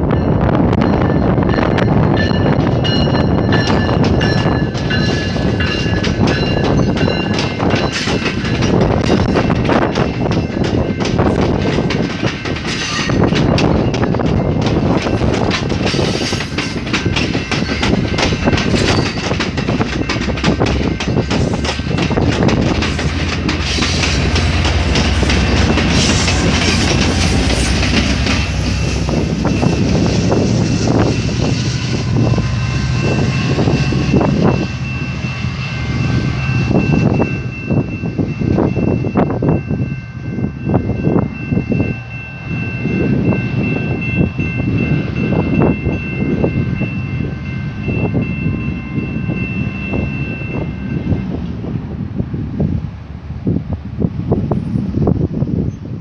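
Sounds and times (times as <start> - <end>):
train rumbling past: 0.0 - 56.0.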